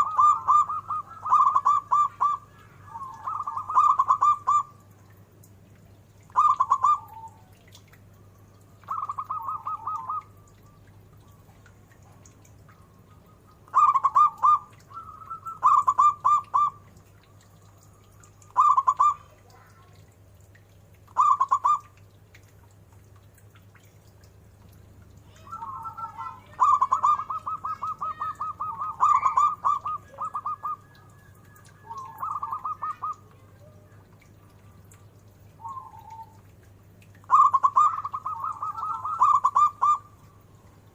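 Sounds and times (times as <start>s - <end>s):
dove cooing: 0.0s - 4.8s, 6.3s - 7.5s, 8.9s - 10.4s, 13.2s - 16.8s, 18.5s - 20.0s, 21.2s - 21.9s, 25.4s - 34.1s, 37.3s - 40.2s.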